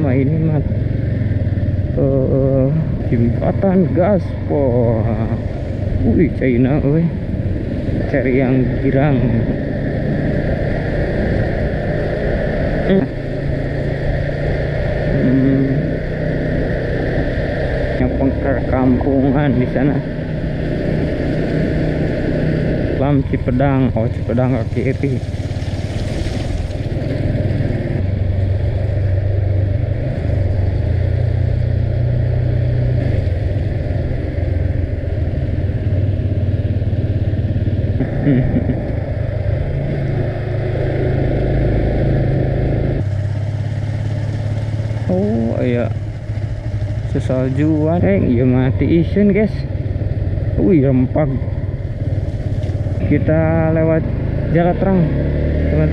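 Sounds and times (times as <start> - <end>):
road noise: 0.0 - 55.9
vehicle engine running: 0.0 - 55.9.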